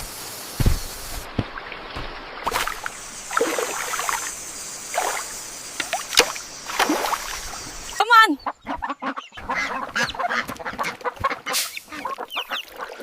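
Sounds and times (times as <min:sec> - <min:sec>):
steady rushing hiss: 0:00.0 - 0:08.0
water splashing and sloshing: 0:00.4 - 0:13.0.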